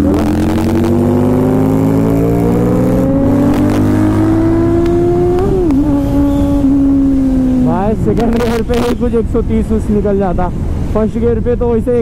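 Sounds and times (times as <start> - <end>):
motorcycle engine accelerating: 0.0 - 9.0.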